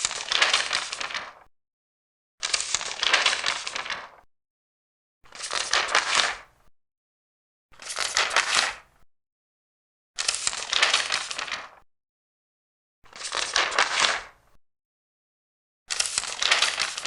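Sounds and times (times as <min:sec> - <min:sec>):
paper pages rustling: 0:00.0 - 0:01.5, 0:02.4 - 0:04.2, 0:05.3 - 0:06.4, 0:07.8 - 0:08.8, 0:10.2 - 0:11.8, 0:13.2 - 0:14.3, 0:15.9 - 0:17.0.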